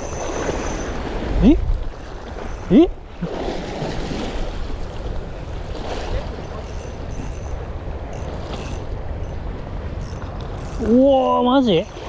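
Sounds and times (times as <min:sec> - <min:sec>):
waves washing against breakwater: 0:00.0 - 0:12.0
wind buffeting microphone: 0:00.0 - 0:12.0.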